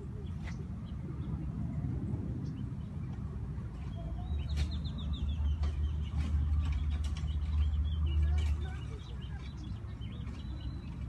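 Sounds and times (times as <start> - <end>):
small bird chirping: 3.8 - 11.0.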